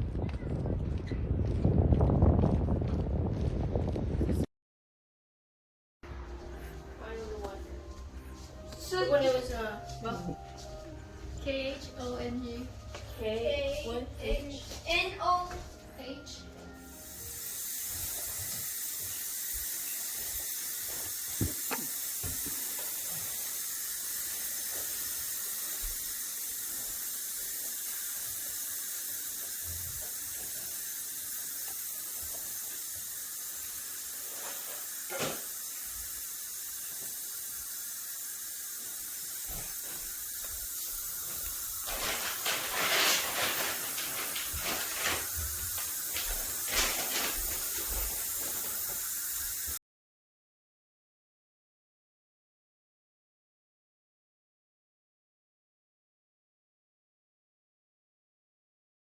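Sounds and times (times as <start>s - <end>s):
steady high hiss: 6.1s - 49.8s
short rustling or scraping: 41.3s - 48.8s.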